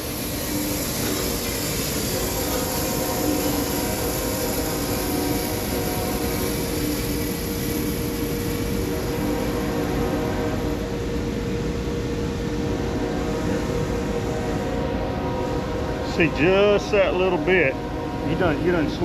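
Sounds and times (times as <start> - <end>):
sawmill engine running: 0.0 - 11.2.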